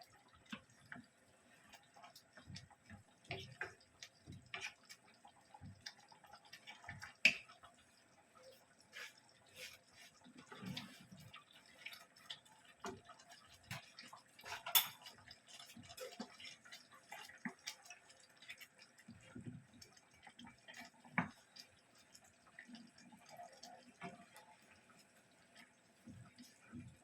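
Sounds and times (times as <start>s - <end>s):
kitchen clicks and taps: 14.6s - 15.1s.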